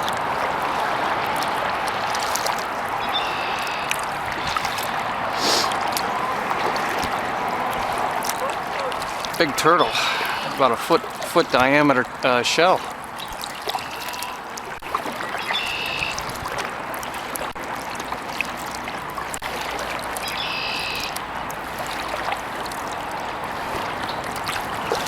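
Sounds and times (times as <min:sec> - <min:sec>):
water trickling and dripping: 0:00.0 - 0:25.0
bird calling: 0:03.0 - 0:14.6, 0:15.2 - 0:16.2, 0:20.2 - 0:21.2.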